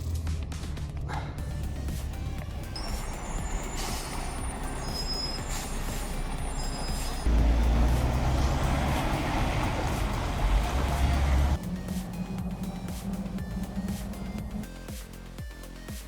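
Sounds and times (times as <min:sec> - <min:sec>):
diesel truck engine running: 0:00.0 - 0:15.4
high-pitched squeals: 0:02.8 - 0:07.3.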